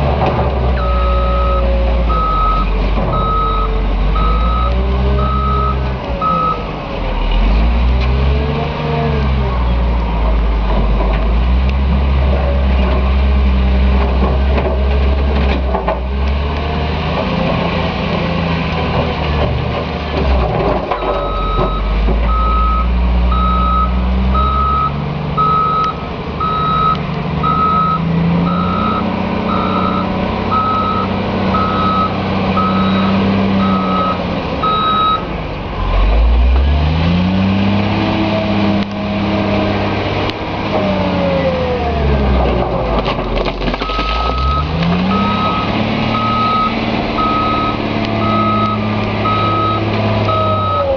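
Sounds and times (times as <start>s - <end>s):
diesel engine revving: 0.0s - 50.9s
reversing alarm beeping: 0.8s - 6.7s, 21.0s - 35.3s, 43.8s - 50.9s.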